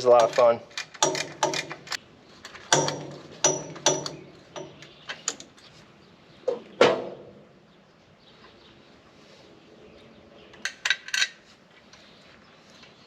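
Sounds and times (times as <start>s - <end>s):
metal wrenches clanking: 0.0s - 5.4s.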